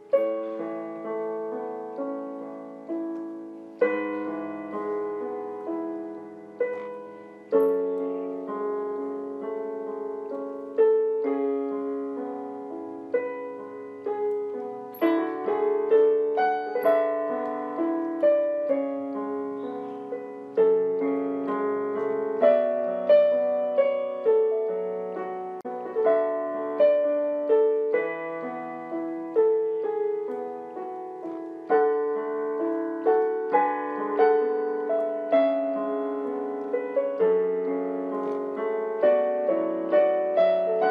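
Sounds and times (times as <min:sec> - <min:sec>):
gentle piano music: 0:00.0 - 0:40.9.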